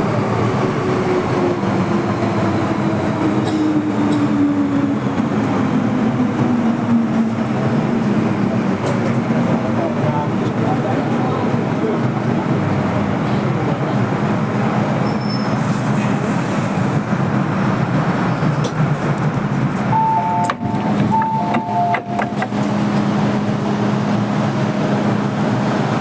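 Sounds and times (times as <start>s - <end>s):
electric train rumbling: 0.0s - 26.0s.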